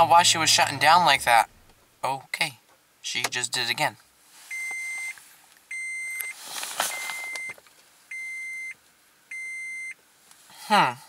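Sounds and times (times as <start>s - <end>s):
car warning chime beeping: 4.5s - 10.0s
brief rustle: 6.3s - 7.8s.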